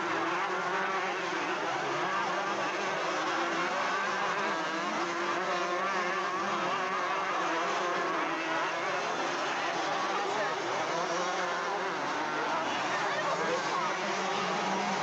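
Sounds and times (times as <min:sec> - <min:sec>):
motocross motorcycle engines racing: 0:00.0 - 0:15.0.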